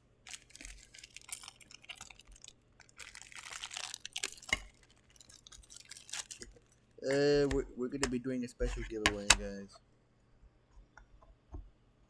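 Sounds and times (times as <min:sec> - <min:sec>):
packaging crinkling and rustling: 0:00.2 - 0:09.5.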